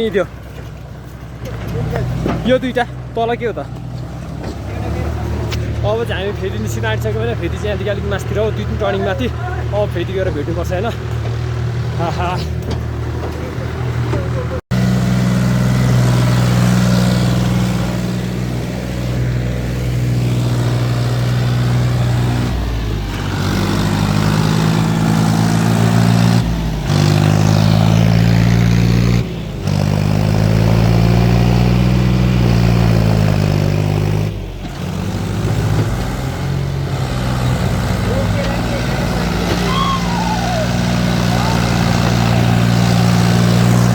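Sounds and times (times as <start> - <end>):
tractor engine labouring: 0.0 - 43.9.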